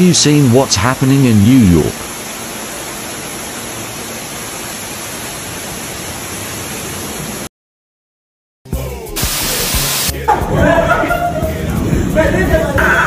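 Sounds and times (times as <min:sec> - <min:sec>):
steady rushing water: 0:00.1 - 0:07.5.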